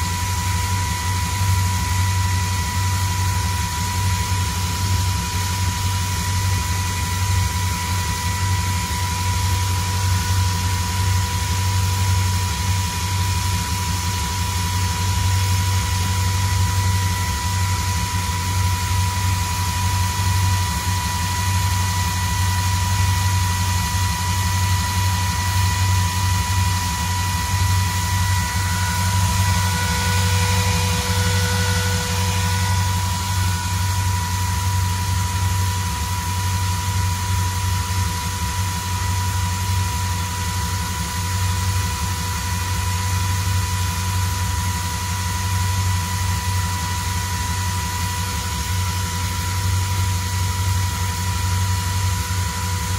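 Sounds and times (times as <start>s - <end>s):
car engine idling: 0.0s - 52.9s
thin high whine: 13.3s - 40.5s.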